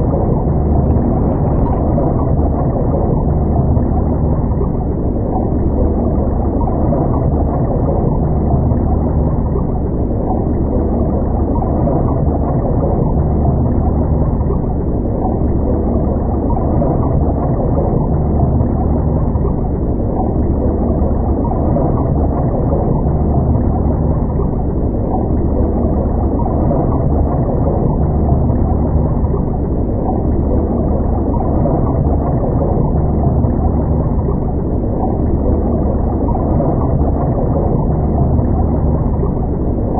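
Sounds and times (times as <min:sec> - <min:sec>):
muffled underwater rumble: 0:00.0 - 0:39.9.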